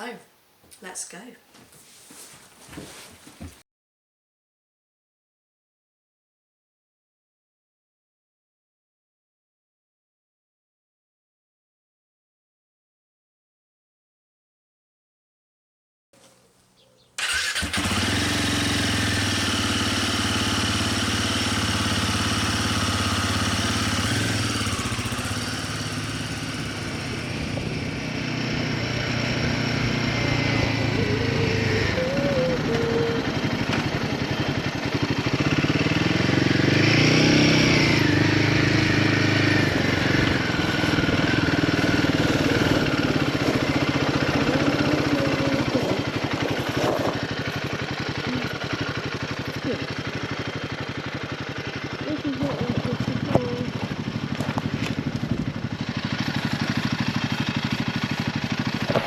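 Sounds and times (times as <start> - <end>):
motorcycle engine running: 16.2 - 59.0.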